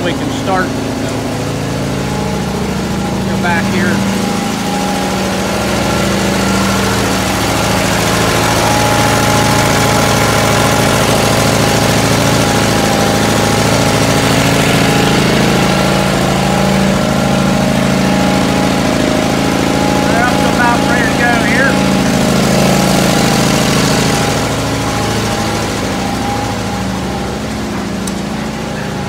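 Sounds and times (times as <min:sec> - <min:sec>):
air compressor running: 0:00.0 - 0:29.0.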